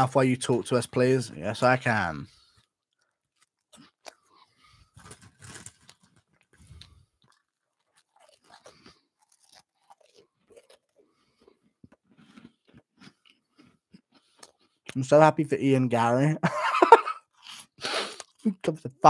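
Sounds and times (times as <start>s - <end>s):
person chewing crunchy snacks: 2.3s - 14.9s, 17.2s - 18.5s.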